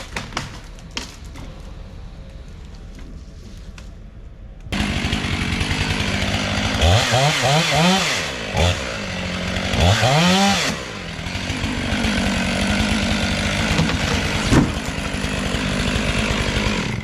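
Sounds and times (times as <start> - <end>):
chainsaw revving and idling: 4.7 - 17.0.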